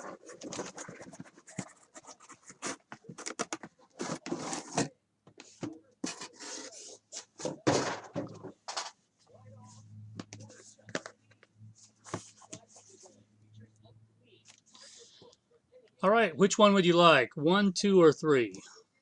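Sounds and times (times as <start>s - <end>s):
cardboard and plastic packaging handled: 0.0s - 8.9s.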